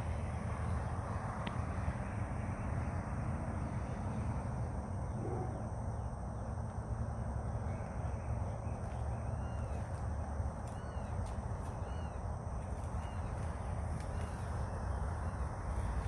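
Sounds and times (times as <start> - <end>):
low rumble and hiss: 0.0 - 16.0
faint bird calls: 7.6 - 16.0.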